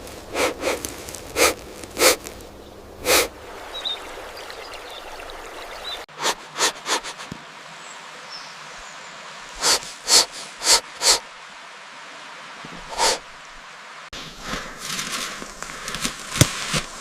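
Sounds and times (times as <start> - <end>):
animal snorting: 0.0 - 2.4, 3.0 - 3.4, 6.1 - 7.4, 9.6 - 11.2, 12.8 - 13.3
steady hiss: 0.0 - 7.9, 8.6 - 11.9, 12.6 - 17.0.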